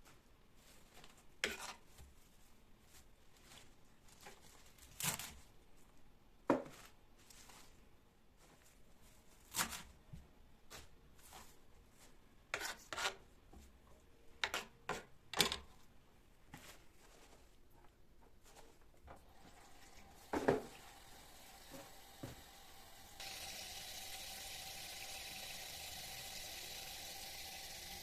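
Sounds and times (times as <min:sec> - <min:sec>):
kitchen knocks and rustles: 0:06.5 - 0:07.0, 0:20.2 - 0:21.0.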